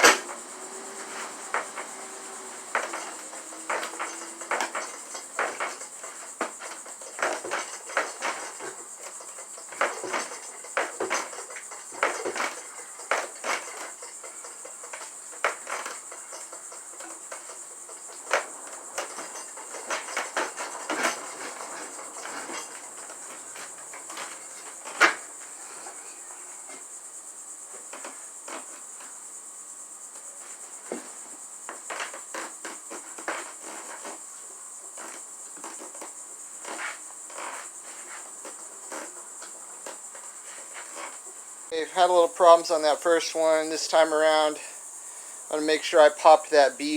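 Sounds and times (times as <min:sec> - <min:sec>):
metal clanks of tire tool: 0:00.0 - 0:26.1
crickets chirring: 0:00.0 - 0:46.9.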